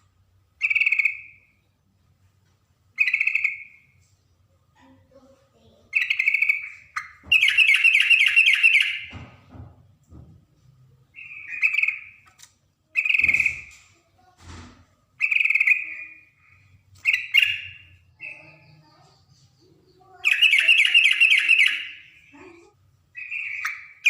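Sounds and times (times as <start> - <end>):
bulbul singing bubbling phrases: 19.7 - 22.6.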